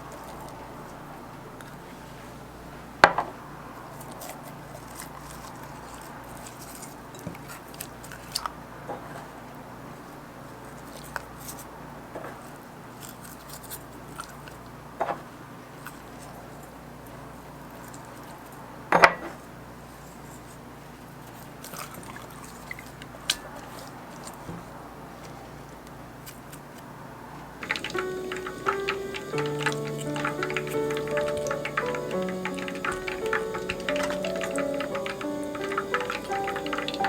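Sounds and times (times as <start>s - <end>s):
small clicks and taps: 27.6s - 37.0s.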